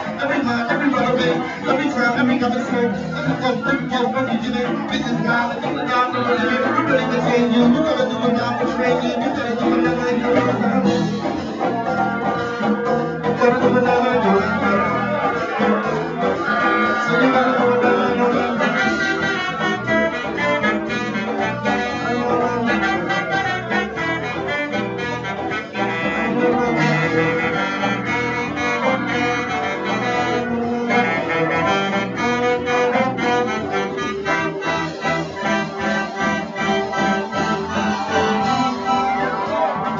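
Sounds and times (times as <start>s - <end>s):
horn section: 0.0s - 39.9s
live band playing: 0.0s - 39.9s
steady drum beat: 0.0s - 39.9s.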